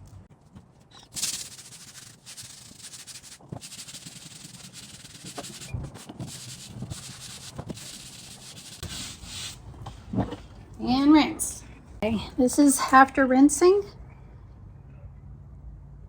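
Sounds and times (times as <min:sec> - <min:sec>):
brush scrubbing wooden board: 0:01.1 - 0:09.6.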